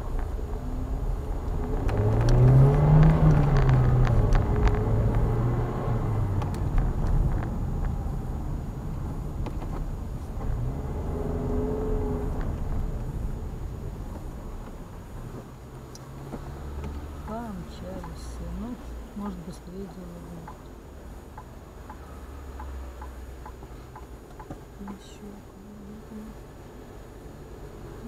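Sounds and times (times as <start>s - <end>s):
car engine pulling away: 0.0s - 18.7s.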